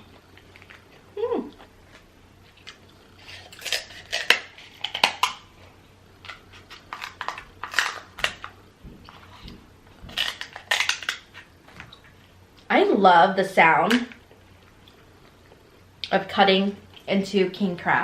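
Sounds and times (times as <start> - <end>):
crab shell cracking: 10.1 - 11.5.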